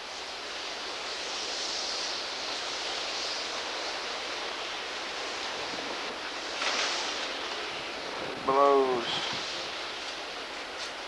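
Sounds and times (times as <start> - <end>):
strong wind blowing: 7.8 - 9.8.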